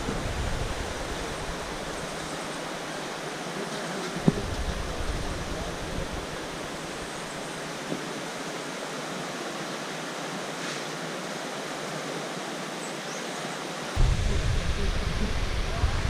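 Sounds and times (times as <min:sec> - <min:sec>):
flowing water rushing: 0:00.0 - 0:16.0
low rumble: 0:14.0 - 0:16.0.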